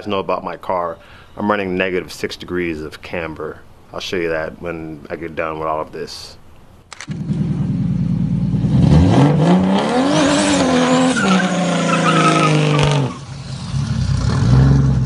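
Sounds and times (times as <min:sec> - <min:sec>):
car engine revving hard: 0:07.2 - 0:15.0
tire squeal: 0:09.8 - 0:15.0.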